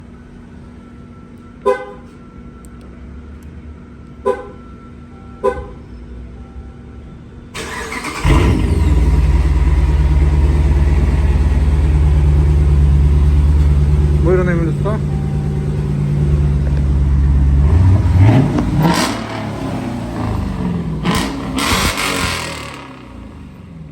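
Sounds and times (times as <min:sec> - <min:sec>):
car horn toots: 0:01.6 - 0:02.2, 0:04.2 - 0:05.8
car engine cranking and idling: 0:07.6 - 0:23.9.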